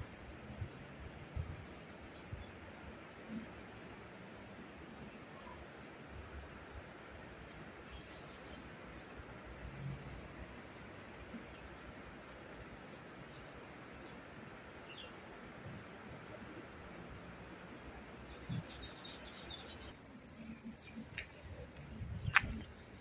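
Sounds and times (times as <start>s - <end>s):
birds chirping faintly: 11.2s - 23.0s.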